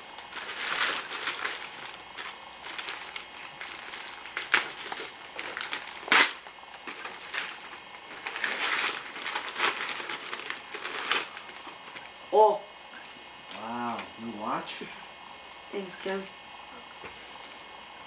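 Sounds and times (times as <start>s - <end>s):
wrapping paper crinkling and tearing: 0.0s - 12.1s, 17.3s - 17.7s.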